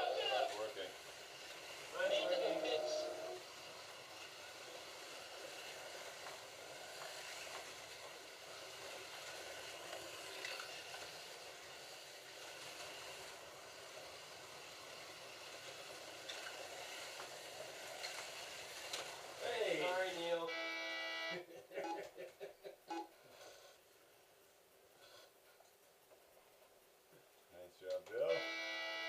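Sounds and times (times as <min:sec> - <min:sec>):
slot cars whirring: 0:00.0 - 0:22.0, 0:28.2 - 0:29.0.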